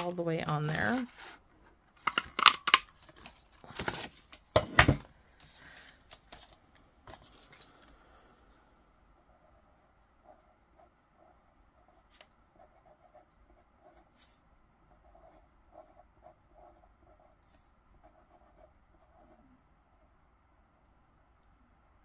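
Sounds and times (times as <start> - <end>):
pen scratching on paper: 9.2 - 20.1.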